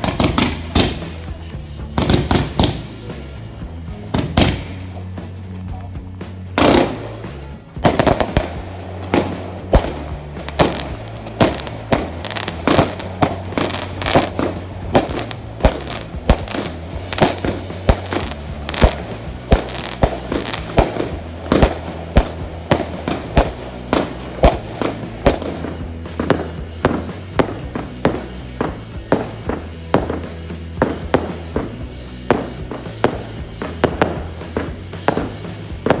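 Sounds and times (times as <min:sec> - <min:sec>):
fireworks bangs: 0:00.0 - 0:05.9, 0:06.5 - 0:36.0
background music: 0:00.0 - 0:36.0.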